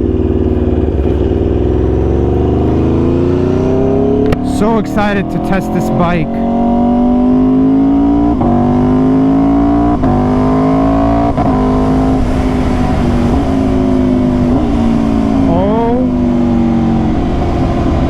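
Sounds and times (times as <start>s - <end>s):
motorcycle engine accelerating: 0.0s - 18.0s
wind rushing: 10.6s - 18.0s.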